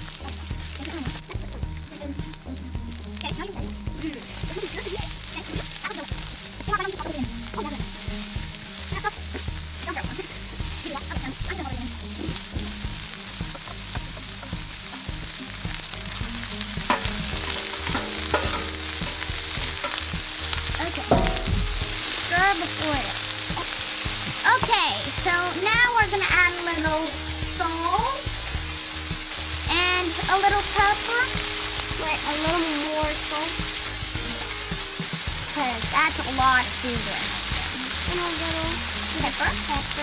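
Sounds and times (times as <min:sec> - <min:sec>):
vegetables sizzling in oil: 0:00.0 - 0:40.0
spatula stirring: 0:11.9 - 0:25.4.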